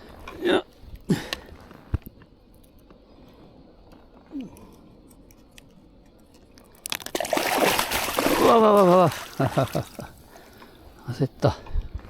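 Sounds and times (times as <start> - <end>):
fish thrashing in water: 6.8 - 10.6.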